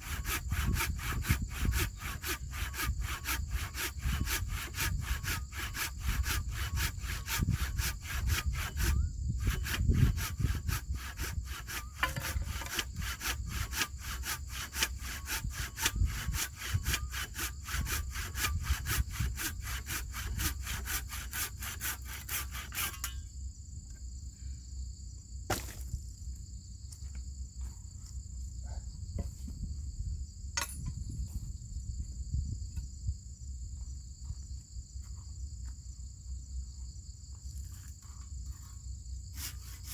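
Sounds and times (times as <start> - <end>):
hand saw cutting wood: 0.0 - 23.2, 37.8 - 39.9
insects droning: 0.0 - 39.9.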